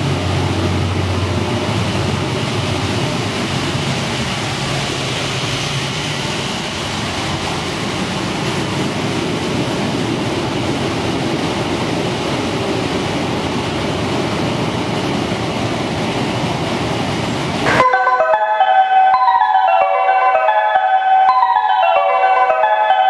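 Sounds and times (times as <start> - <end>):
train wheels rumbling: 0.0 - 23.0
marimba-like chime melody: 17.7 - 23.0.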